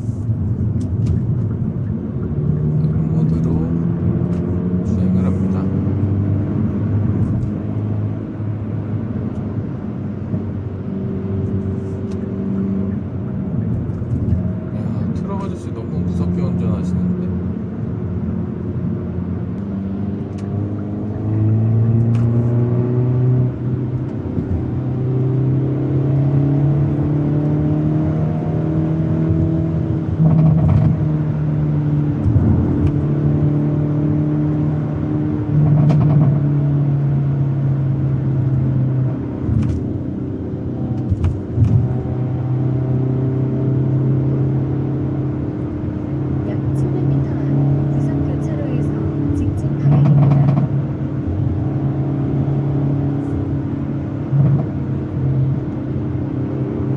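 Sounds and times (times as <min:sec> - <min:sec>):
car engine and exhaust accelerating: 0:00.0 - 0:56.9.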